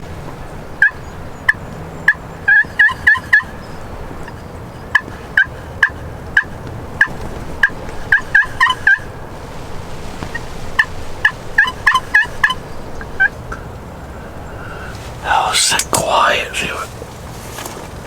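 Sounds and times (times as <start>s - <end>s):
turkey clucks and yelps: 0.8s - 3.7s, 4.9s - 9.2s, 10.2s - 15.1s
rain hissing: 7.1s - 17.8s.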